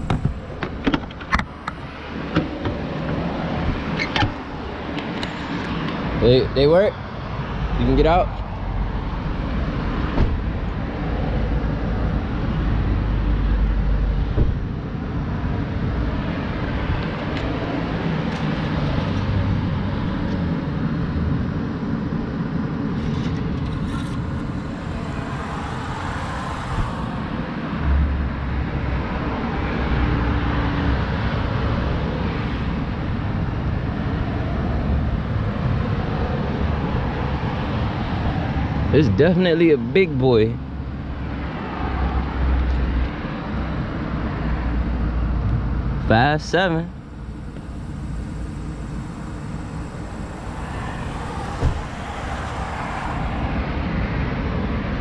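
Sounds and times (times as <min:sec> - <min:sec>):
car engine idling: 0:45.6 - 0:54.0.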